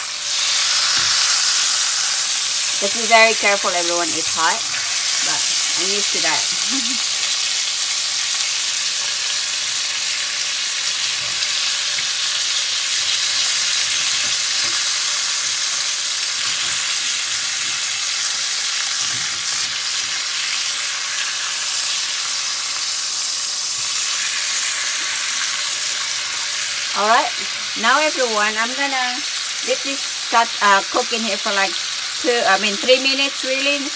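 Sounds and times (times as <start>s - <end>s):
chicken sizzling in a hot pan: 0.0s - 33.9s.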